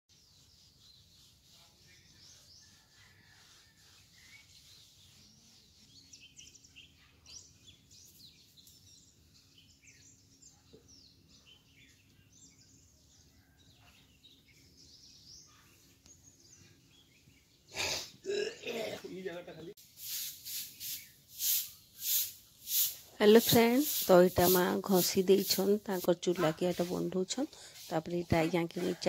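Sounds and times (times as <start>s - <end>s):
small birds chirping: 0.1s - 29.0s.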